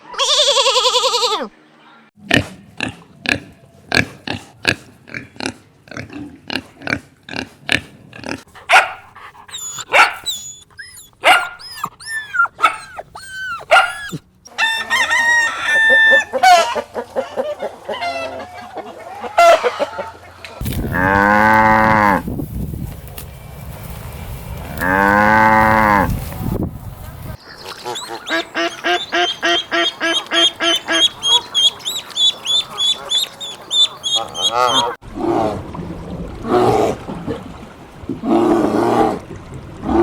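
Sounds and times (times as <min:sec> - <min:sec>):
farm animals calling: 0:08.6 - 0:20.2, 0:27.0 - 0:35.0.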